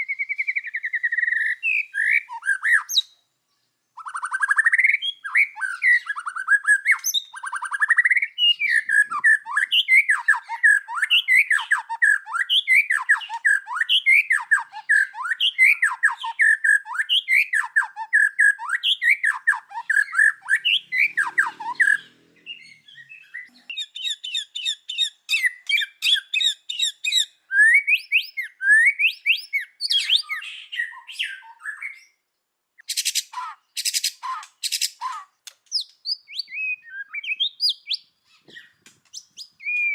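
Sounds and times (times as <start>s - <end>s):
bird singing: 0.0s - 39.9s
bird ticking calls: 4.0s - 31.6s.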